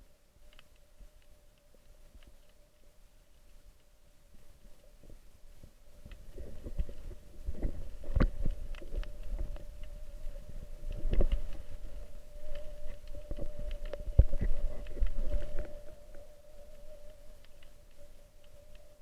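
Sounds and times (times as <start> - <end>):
thin continuous hum: 0.0 - 19.0
low underwater rumble: 5.8 - 18.1
underwater knocks and clicks: 6.0 - 10.0, 10.9 - 11.6, 12.5 - 15.8.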